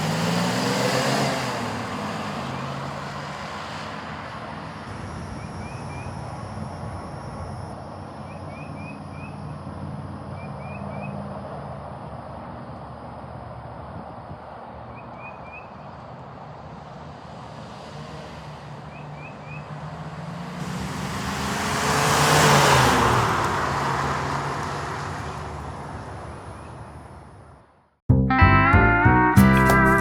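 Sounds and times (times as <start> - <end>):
car driving past: 17.3 - 27.1
music: 28.1 - 30.0.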